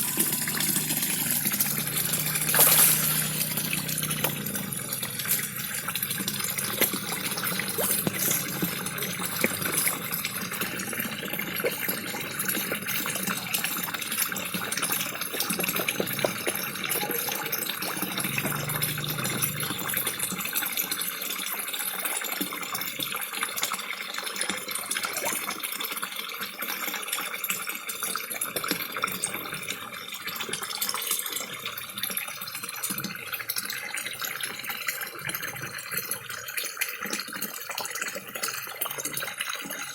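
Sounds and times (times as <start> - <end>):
fish clicking and slurping: 0.0 - 21.0, 24.5 - 25.7
small waterfall splashing: 0.0 - 22.6.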